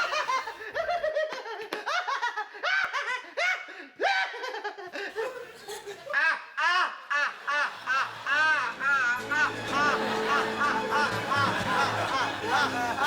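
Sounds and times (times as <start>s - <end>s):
hearty laughter: 0.0s - 13.0s.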